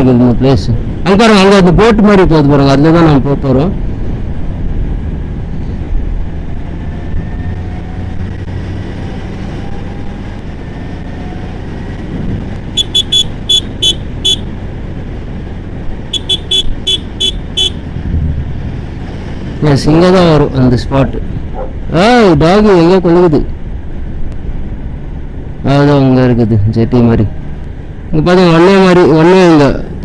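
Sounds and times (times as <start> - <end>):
motorcycle engine and wind rumble: 0.0 - 30.0
horn short beeps: 12.8 - 14.5, 16.1 - 17.8.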